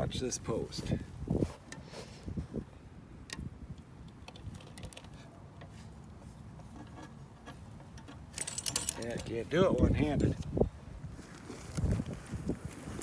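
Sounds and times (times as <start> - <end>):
wire tensioner ratchet clicks: 7.9 - 10.5.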